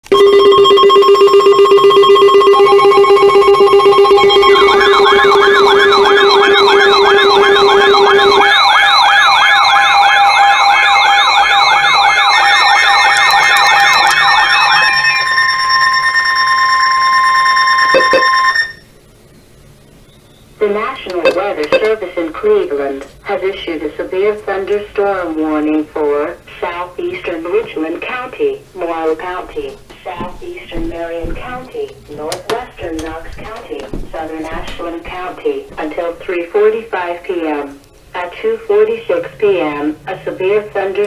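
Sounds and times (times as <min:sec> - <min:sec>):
steady higher alert tones: 0:00.1 - 0:18.8
steady low alert tone: 0:00.1 - 0:18.8
warbling siren tone: 0:00.2 - 0:18.9.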